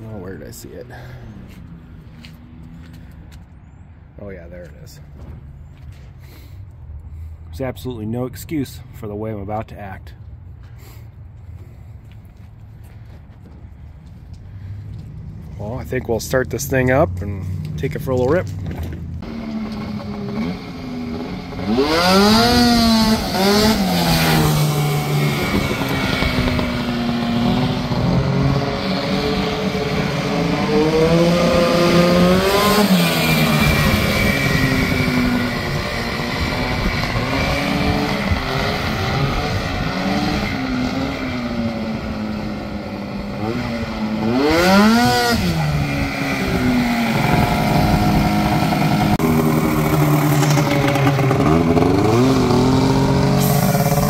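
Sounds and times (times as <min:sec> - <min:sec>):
two-stroke engine revving: 0:19.2 - 0:54.0.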